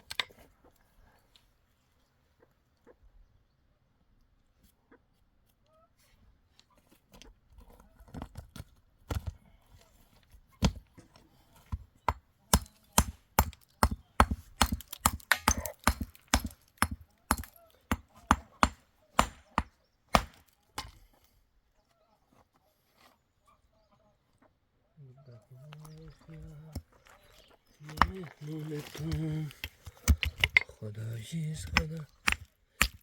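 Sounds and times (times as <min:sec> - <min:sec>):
sharp chopping strikes: 0:12.5 - 0:20.9.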